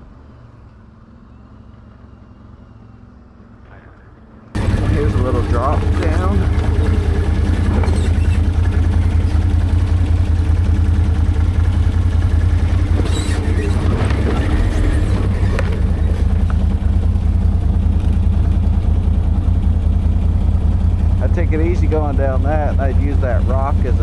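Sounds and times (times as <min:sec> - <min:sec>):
atv engine running: 0:01.8 - 0:24.0
knocks and rattles: 0:04.6 - 0:19.1.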